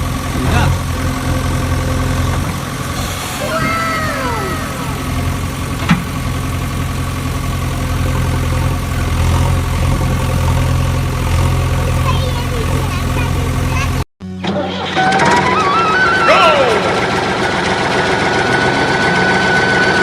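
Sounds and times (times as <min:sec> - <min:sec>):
engine idling hum: 0:00.0 - 0:14.8
falling whistle-like sounds: 0:03.1 - 0:05.8, 0:14.8 - 0:17.3.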